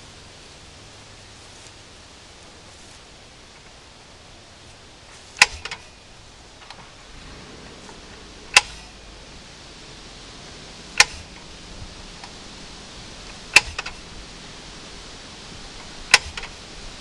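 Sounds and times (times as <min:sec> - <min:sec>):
steady low background hum: 0:00.0 - 0:17.0
sharp clicks: 0:05.4 - 0:05.9, 0:08.5 - 0:08.9, 0:10.9 - 0:11.5, 0:13.3 - 0:14.1, 0:15.8 - 0:16.6.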